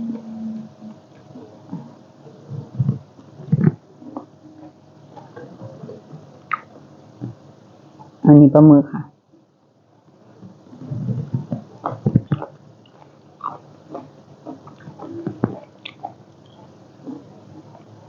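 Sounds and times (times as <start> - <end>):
person chewing squid: 11.5 - 17.9.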